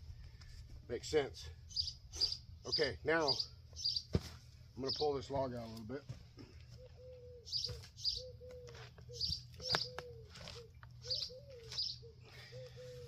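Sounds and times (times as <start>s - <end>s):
other birds: 1.6s - 13.0s
bird calling in low notes: 6.4s - 13.0s.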